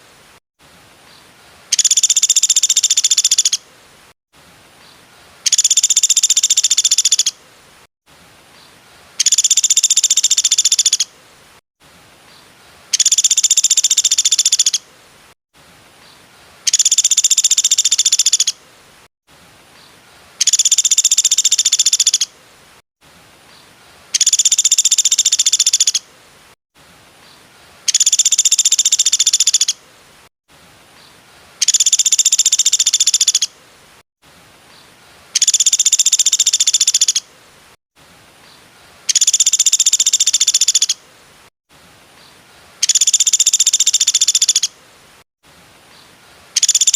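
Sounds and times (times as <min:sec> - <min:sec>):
low hiss: 0:00.0 - 0:46.9
bird rapid trill: 0:01.7 - 0:03.6, 0:05.4 - 0:07.4, 0:09.2 - 0:11.1, 0:12.9 - 0:14.8, 0:16.7 - 0:18.6, 0:20.4 - 0:22.3, 0:24.1 - 0:26.0, 0:27.9 - 0:29.8, 0:31.6 - 0:33.5, 0:35.4 - 0:37.2, 0:39.1 - 0:41.0, 0:42.8 - 0:44.7, 0:46.6 - 0:46.9.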